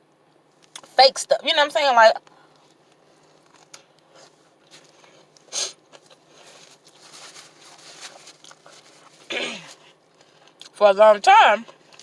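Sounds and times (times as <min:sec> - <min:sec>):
sharp crinkle: 0:03.2 - 0:10.3
person chewing: 0:03.3 - 0:10.8.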